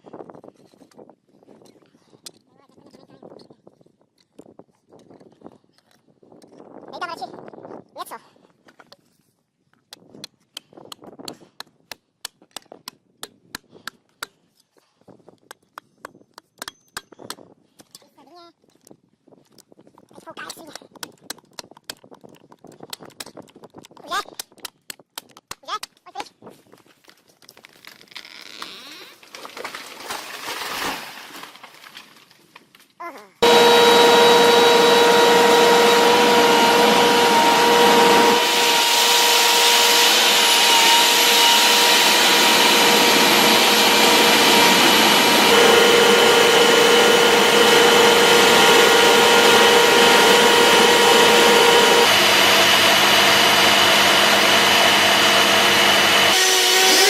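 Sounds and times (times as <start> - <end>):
power saw whining: 33.4 - 57.0.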